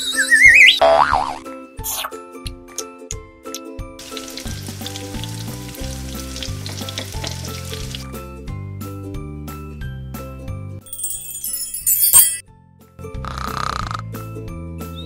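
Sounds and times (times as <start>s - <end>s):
frying sizzle: 4.0s - 8.0s.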